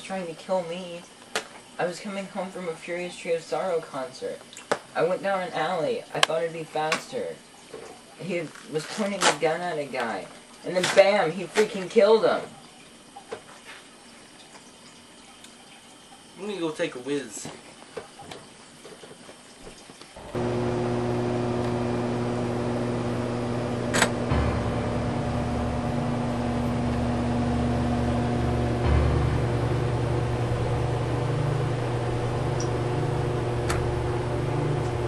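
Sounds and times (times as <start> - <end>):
steady mechanical hum: 0.0 - 35.0
sharp click: 23.9 - 24.2.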